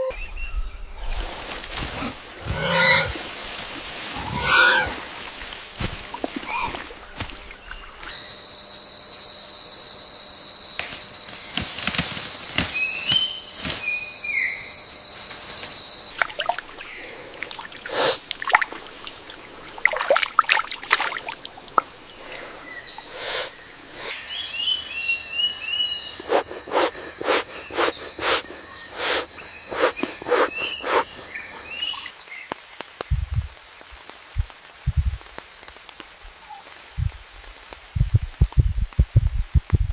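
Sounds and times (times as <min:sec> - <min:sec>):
high-pitched insect drone: 0:02.4 - 0:03.3, 0:06.4 - 0:32.1
sharp crackles and taps: 0:32.4 - 0:36.4.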